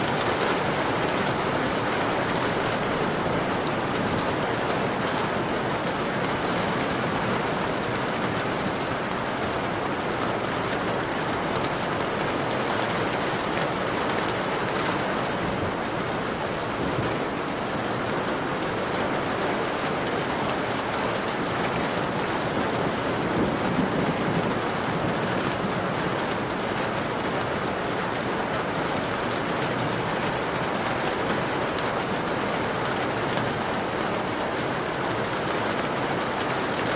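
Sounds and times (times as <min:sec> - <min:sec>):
rain on a window: 0:00.0 - 0:36.9.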